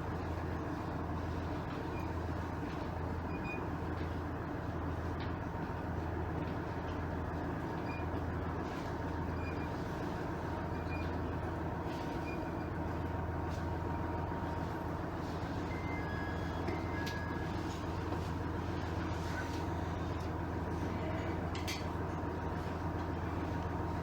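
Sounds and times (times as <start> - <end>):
diesel engine idling: 10.0 - 24.0.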